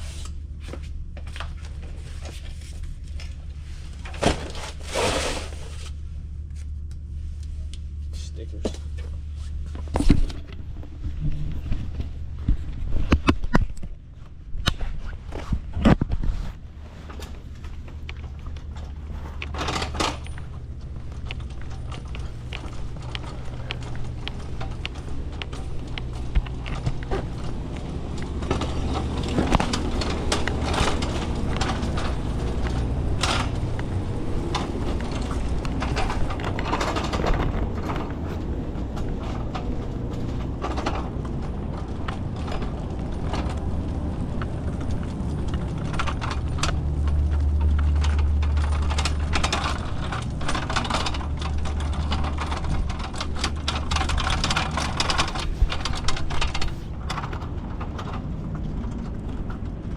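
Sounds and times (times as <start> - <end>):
low engine hum: 0.0 - 59.9
clicks knocks and rattles: 17.1 - 59.9.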